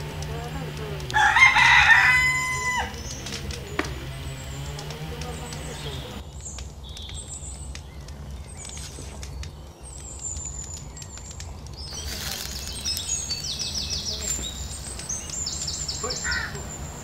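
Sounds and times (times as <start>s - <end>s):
low steady rumble: 0.0s - 6.8s
small birds chirping: 0.0s - 17.0s
faint clicks: 4.8s - 16.6s.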